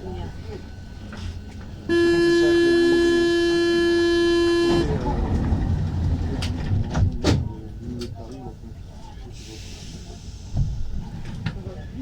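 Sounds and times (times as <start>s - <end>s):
door warning buzzer: 1.9s - 4.9s
train departing rumble: 4.7s - 7.8s.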